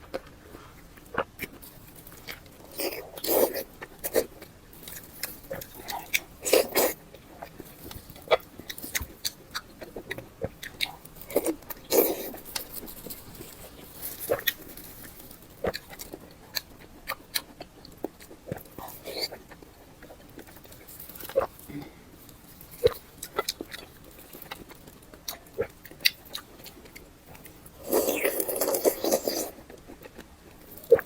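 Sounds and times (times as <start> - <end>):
person biting and chewing food: 0.0 - 31.0.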